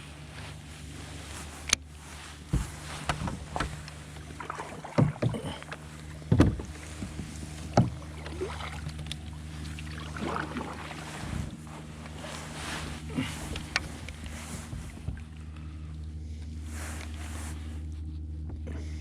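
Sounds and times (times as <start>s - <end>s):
water sloshing around kayak: 0.0s - 18.0s
low hum: 0.0s - 19.0s
thumps on kayak hull: 2.4s - 8.4s.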